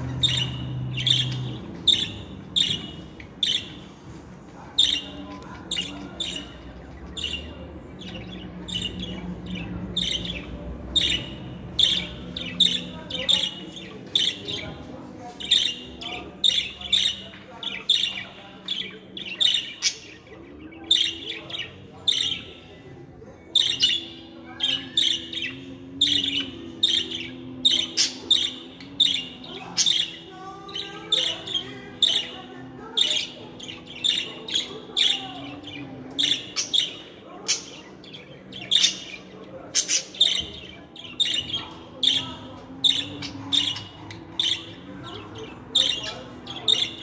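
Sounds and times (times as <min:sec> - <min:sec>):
budgerigars chirping and warbling: 0:00.0 - 0:47.0.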